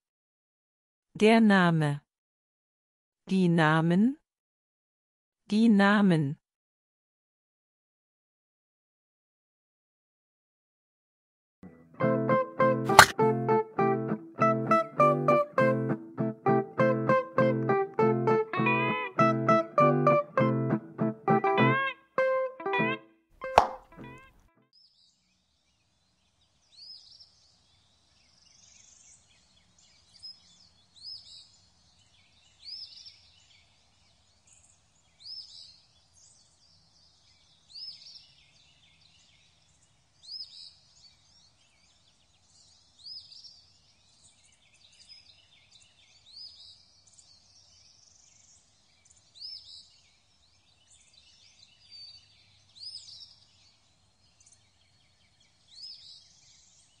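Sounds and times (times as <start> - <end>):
bird chirping: 26.3 - 57.0.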